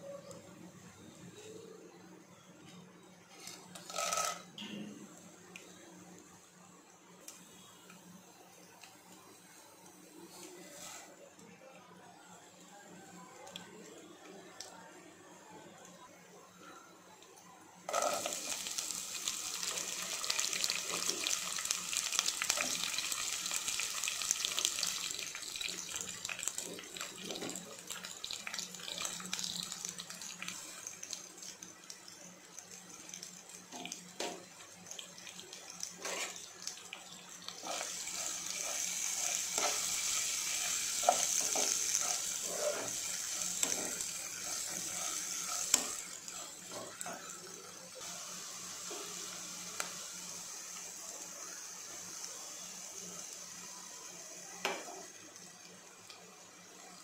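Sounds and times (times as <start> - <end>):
hot oil sizzling in a pot: 3.8 - 4.4, 17.9 - 57.0.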